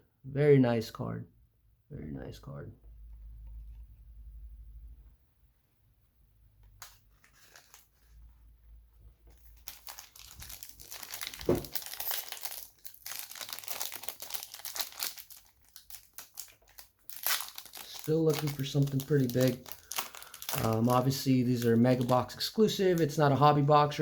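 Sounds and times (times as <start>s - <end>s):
plastic wrapper crinkling and tearing: 6.8s - 8.2s, 9.3s - 24.0s.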